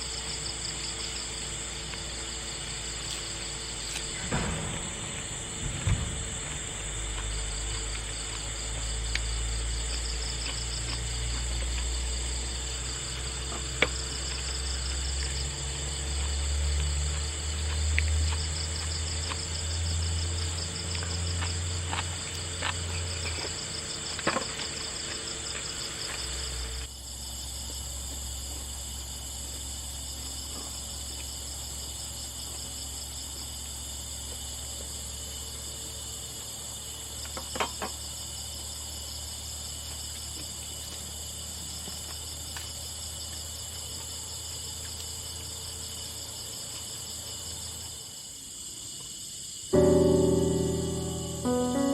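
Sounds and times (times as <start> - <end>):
insects trilling: 0.0 - 51.9
low rumble: 4.1 - 9.2.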